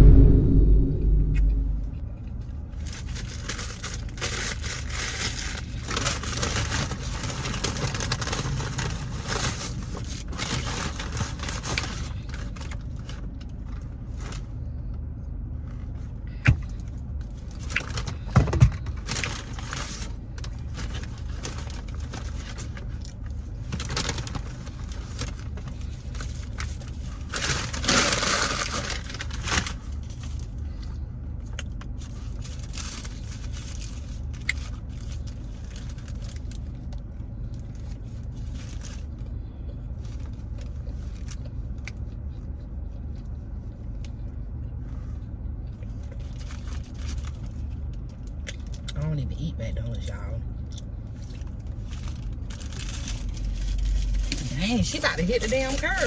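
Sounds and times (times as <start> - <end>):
rustling and crinkling: 2.9 - 14.5, 15.6 - 39.3, 50.8 - 56.0
car rumble inside cabin: 37.5 - 56.0.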